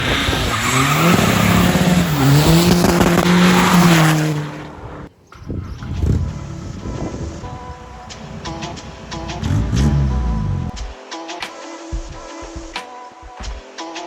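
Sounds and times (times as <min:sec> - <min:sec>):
diesel engine revving hard: 0:00.0 - 0:10.8
quieter engine sound: 0:01.2 - 0:10.8.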